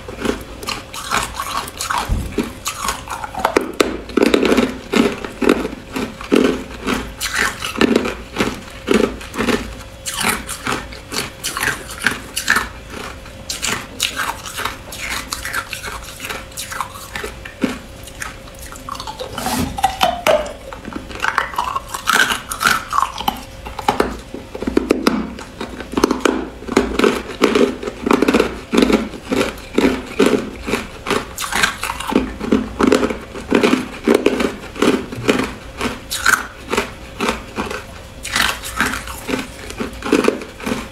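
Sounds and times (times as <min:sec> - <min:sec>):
ice being chewed: 0:00.0 - 0:40.9.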